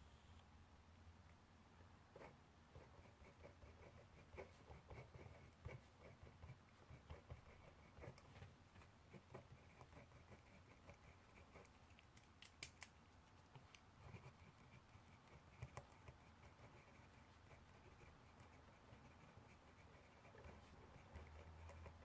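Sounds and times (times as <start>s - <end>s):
low room hum: 0.0s - 22.0s
pen scratching on paper: 2.2s - 11.9s, 13.4s - 22.0s.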